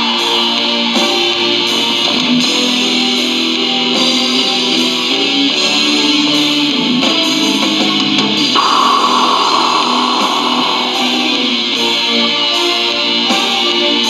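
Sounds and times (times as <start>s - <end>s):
metal music: 8.6s - 12.4s
electric guitar sustained notes: 8.6s - 12.6s.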